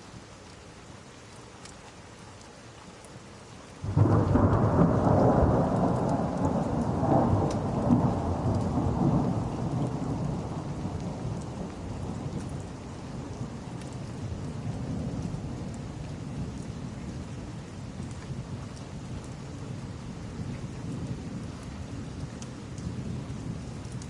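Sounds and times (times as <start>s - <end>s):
steady rain: 0.0s - 24.0s
thunder rumbling: 3.8s - 24.0s.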